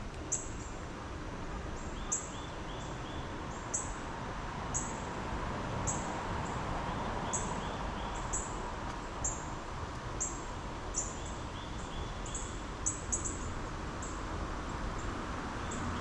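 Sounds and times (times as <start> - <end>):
small birds chirping: 10.2 - 16.0.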